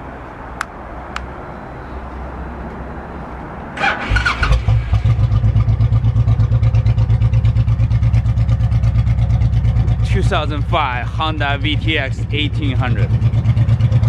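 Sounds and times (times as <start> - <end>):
motorcycle engine starting and idling: 3.8 - 14.0.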